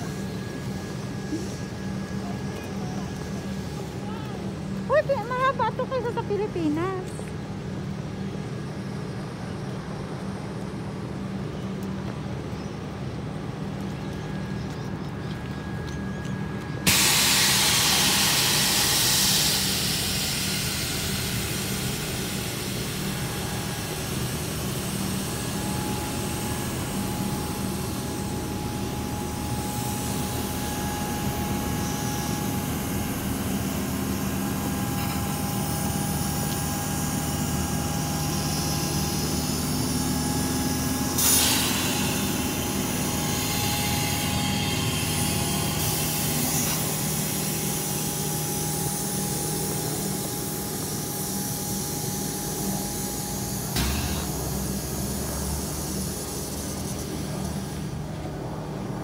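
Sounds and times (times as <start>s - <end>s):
electric train hum: 0.0s - 59.0s
loud hiss: 16.8s - 58.1s.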